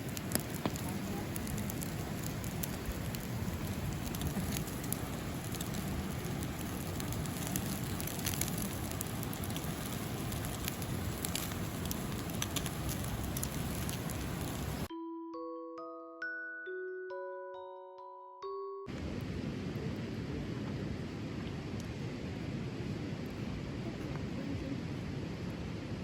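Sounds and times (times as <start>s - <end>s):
campfire hissing: 0.0s - 14.9s
fire crackling and popping: 0.0s - 14.9s.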